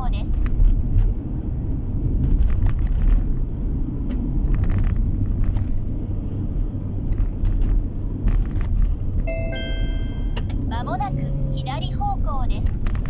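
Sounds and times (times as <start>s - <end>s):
car interior road rumble: 0.0s - 13.0s
faint clicks and rattles: 2.0s - 6.0s, 7.0s - 9.2s.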